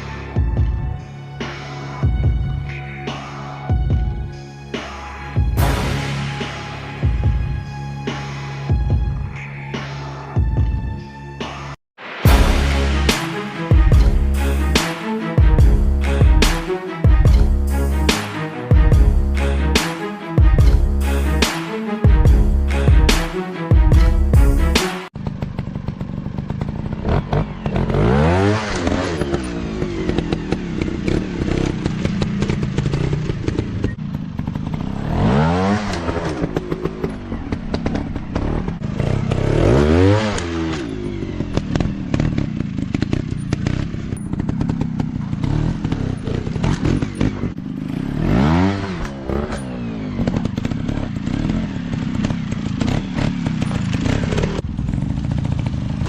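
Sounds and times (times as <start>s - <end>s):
dirt bike engine revving: 12.3s - 56.0s.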